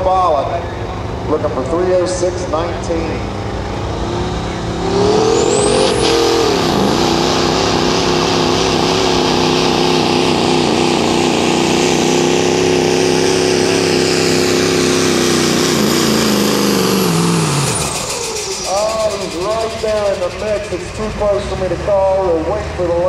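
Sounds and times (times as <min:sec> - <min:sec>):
diesel engine at full throttle: 0:00.0 - 0:23.0
high turbo whistle: 0:03.5 - 0:10.9.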